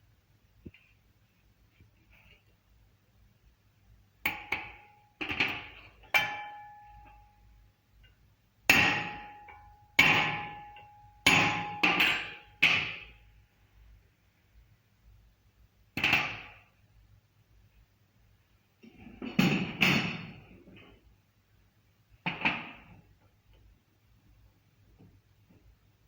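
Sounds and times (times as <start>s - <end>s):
hammer striking metal: 4.3s - 7.3s, 8.7s - 13.2s.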